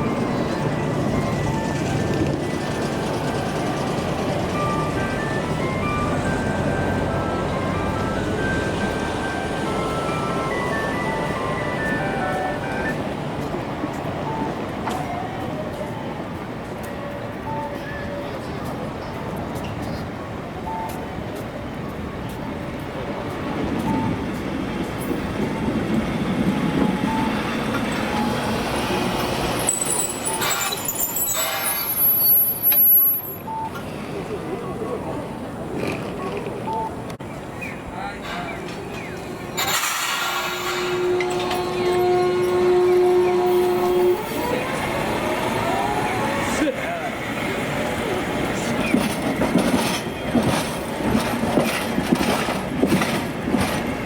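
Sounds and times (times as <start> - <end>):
tram wheels rumbling on rails: 0.0 - 54.0
high wheel squeal: 27.0 - 33.6, 38.2 - 46.7.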